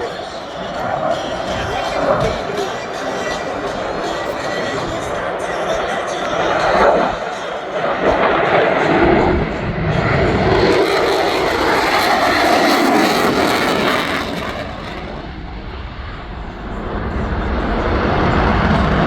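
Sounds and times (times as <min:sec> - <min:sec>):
airplane flying past: 0:00.0 - 0:19.0.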